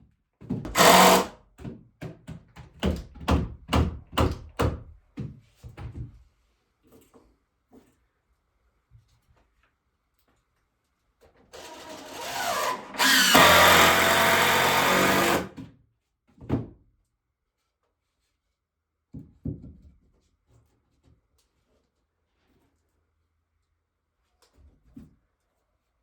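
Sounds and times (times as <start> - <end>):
power drill running: 0.7 - 1.3, 11.6 - 15.5.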